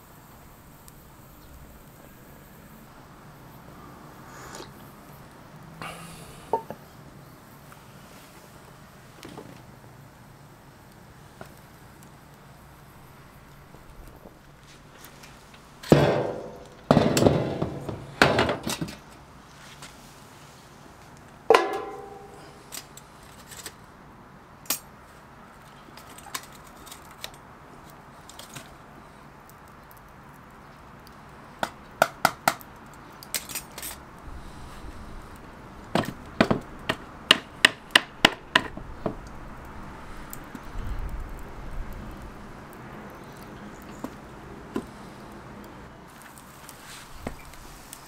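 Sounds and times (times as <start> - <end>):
ringing metal clanks: 21.5 - 22.6.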